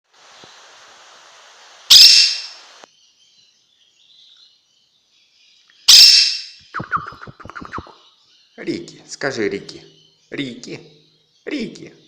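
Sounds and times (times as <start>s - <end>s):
parrot screeching: 1.9s - 2.6s, 5.9s - 6.5s.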